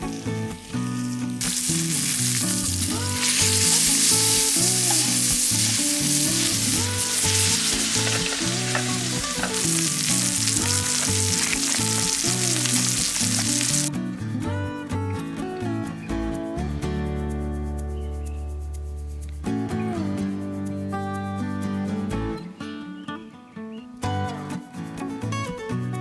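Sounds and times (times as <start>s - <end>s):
meat sizzling in a frying pan: 0.0s - 13.9s
background music: 0.0s - 22.8s.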